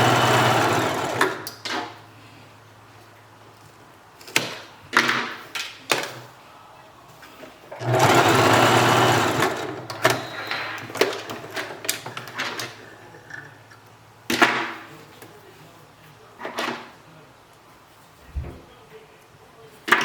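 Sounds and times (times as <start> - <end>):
sewing machine running: 0.0 - 1.5, 7.7 - 11.9.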